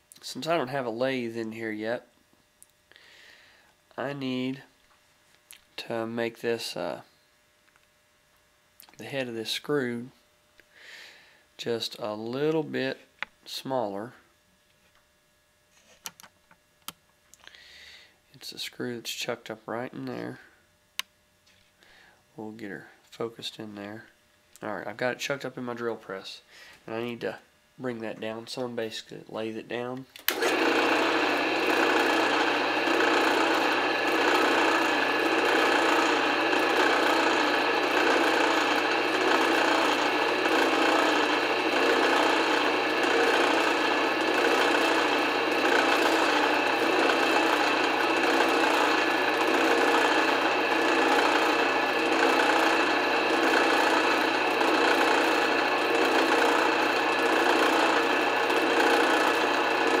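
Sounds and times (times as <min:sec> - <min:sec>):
drill press motor hum: 0:30.2 - 1:00.0.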